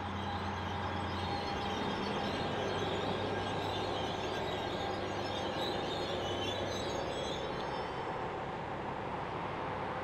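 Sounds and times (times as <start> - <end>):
locomotive engine hum: 0.0 - 10.0
train wheels rumbling on rail: 0.0 - 10.0.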